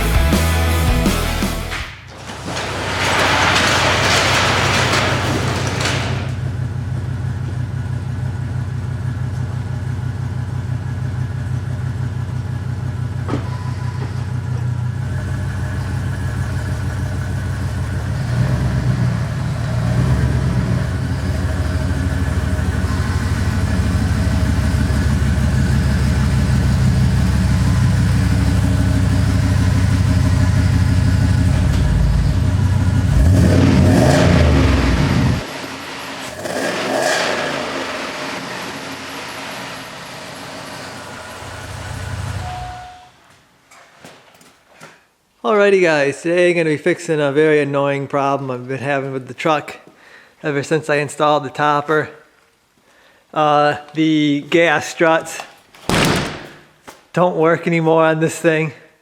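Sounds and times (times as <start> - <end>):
pickup truck engine running: 6.3 - 13.3, 14.3 - 36.9.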